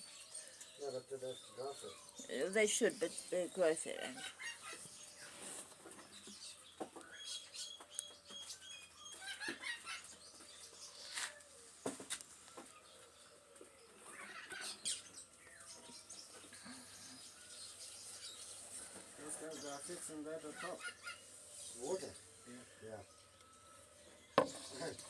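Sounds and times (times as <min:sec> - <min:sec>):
birds calling and chirping: 0:00.0 - 0:25.0
sharp knocks and clatters: 0:24.4 - 0:25.0.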